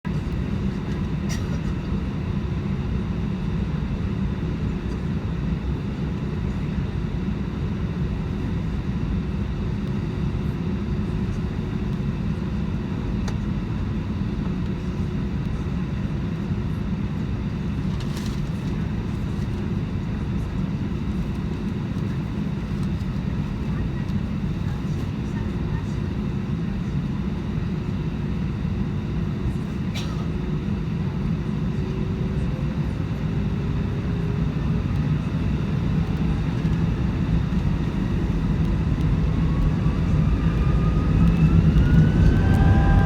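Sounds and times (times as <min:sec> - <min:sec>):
jet cabin engine rumble: 0:00.1 - 0:43.0.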